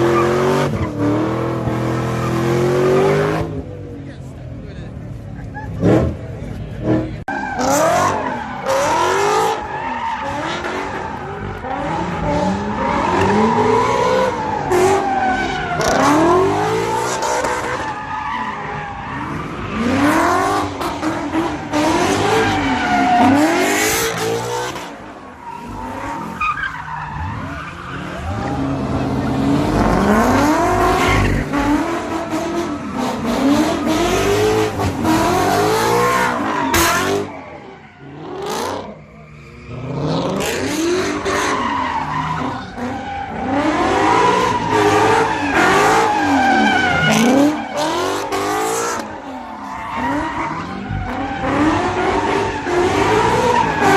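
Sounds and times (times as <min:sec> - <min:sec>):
tires squealing and skidding: 0:00.0 - 0:03.6, 0:05.1 - 0:53.9
car engine revving: 0:00.0 - 0:53.9.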